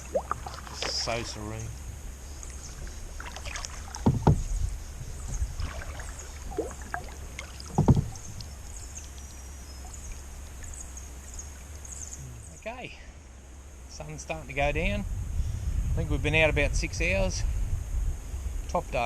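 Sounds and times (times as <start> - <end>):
water dribbling: 0.0 - 1.6, 2.4 - 12.2
paddle strokes splashing: 0.0 - 12.0.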